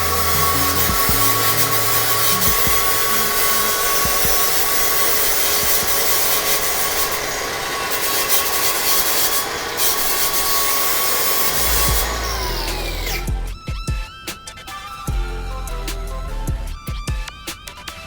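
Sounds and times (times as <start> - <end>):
angle grinder grinding steel: 0.0 - 16.4.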